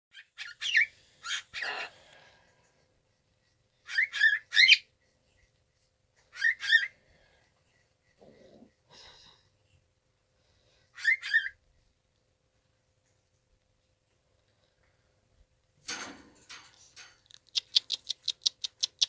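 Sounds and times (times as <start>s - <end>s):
cockatiel chirping: 3.8s - 4.9s, 6.3s - 6.9s, 11.0s - 11.6s.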